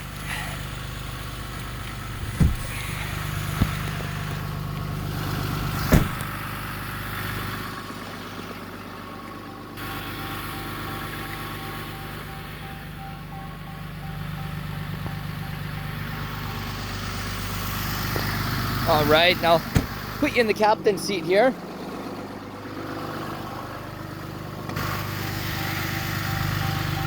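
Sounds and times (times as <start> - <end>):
diesel engine idling: 0.0 - 27.0
sharp knocks: 2.2 - 2.8, 5.9 - 6.3, 19.6 - 20.1.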